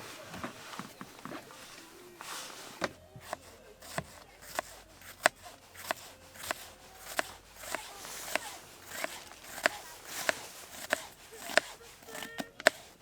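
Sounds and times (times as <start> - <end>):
knife chopping on cutting board: 2.9 - 13.0.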